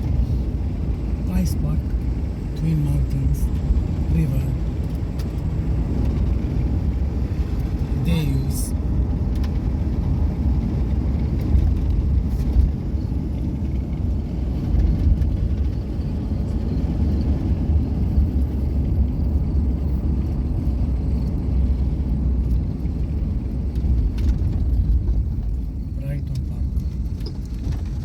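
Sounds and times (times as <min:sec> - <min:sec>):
car engine rumble: 0:00.0 - 0:28.0
road noise: 0:00.0 - 0:28.0.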